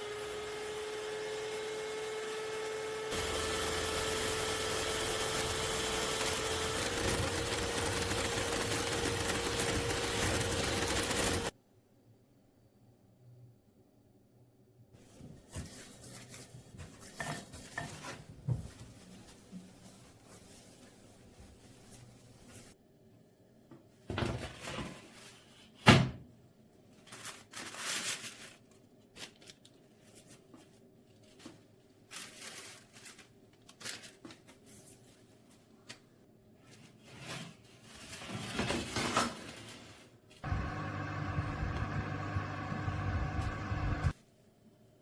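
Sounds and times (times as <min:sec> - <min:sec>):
kitchen appliance humming: 0:00.0 - 0:11.5, 0:40.4 - 0:44.2
kitchen knocks and clatters: 0:16.7 - 0:19.6, 0:24.0 - 0:25.1.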